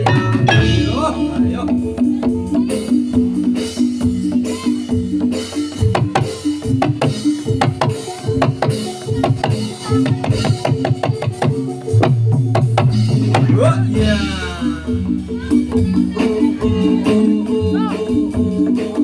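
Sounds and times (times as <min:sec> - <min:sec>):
low bass line: 0:00.0 - 0:04.4, 0:11.9 - 0:19.0
ringing metal percussion: 0:00.0 - 0:18.6
drums beating quick rhythm: 0:00.0 - 0:19.0.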